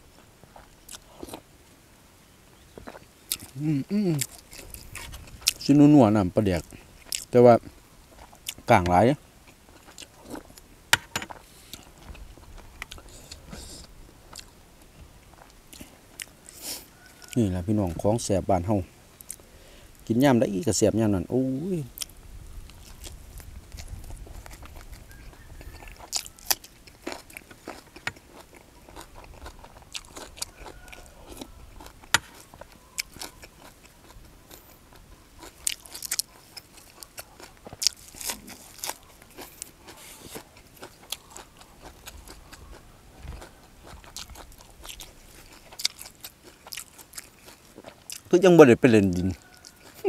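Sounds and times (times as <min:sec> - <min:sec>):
wet chewing: 0:00.5 - 0:01.5, 0:02.6 - 0:05.9, 0:06.6 - 0:10.7, 0:11.3 - 0:18.3, 0:19.2 - 0:20.2, 0:21.8 - 0:50.0
crisp crunches of vegetables: 0:21.8 - 0:50.0.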